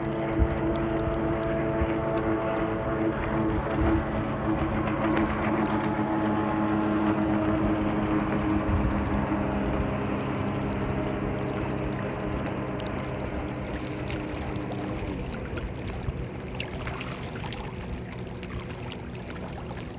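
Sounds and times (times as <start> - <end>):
steady motor hum: 0.0 - 19.9
water splashing and lapping: 0.0 - 19.9
water dripping: 12.8 - 19.9.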